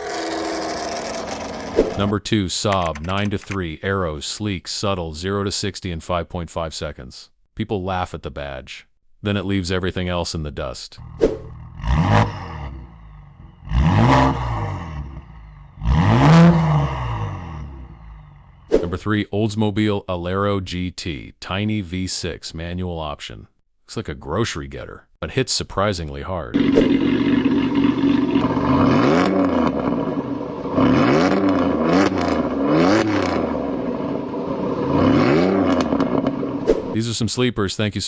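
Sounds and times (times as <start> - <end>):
car engine revving: 11.2 - 18.6, 26.6 - 37.0
car engine idling: 26.6 - 30.8.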